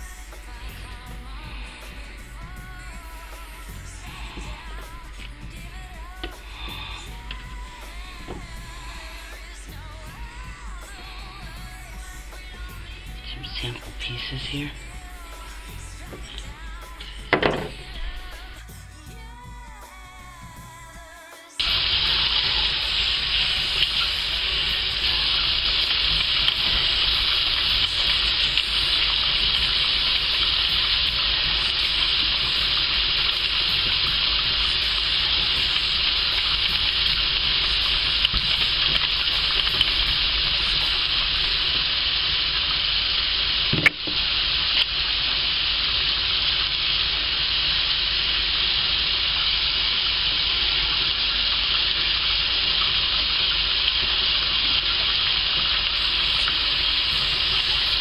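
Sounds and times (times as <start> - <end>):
tap water running into sink: 4.0 - 9.2, 15.6 - 18.5, 21.6 - 58.0.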